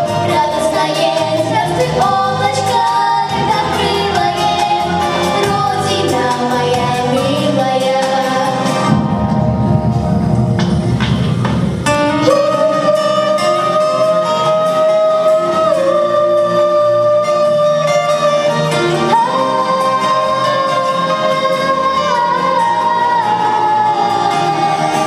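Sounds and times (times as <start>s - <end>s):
song with backing track: 0.0s - 25.0s
wordless sung long notes: 11.9s - 25.0s.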